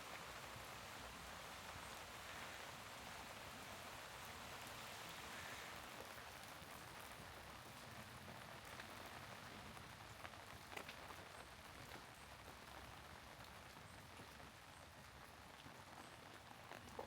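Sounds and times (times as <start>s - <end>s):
rain falling: 0.0s - 17.0s
raindrops ticking: 6.0s - 14.4s, 15.4s - 17.0s.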